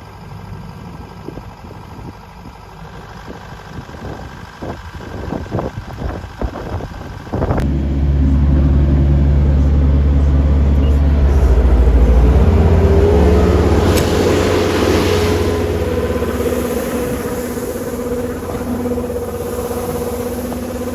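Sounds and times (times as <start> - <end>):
engine running: 0.0 - 20.9
hiss: 14.0 - 20.9.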